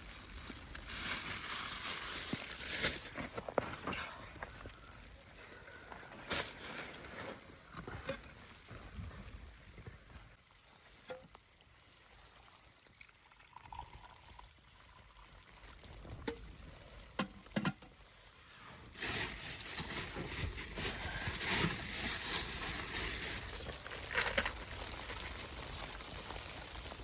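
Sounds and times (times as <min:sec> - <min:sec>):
liquid pouring: 0:12.0 - 0:16.0.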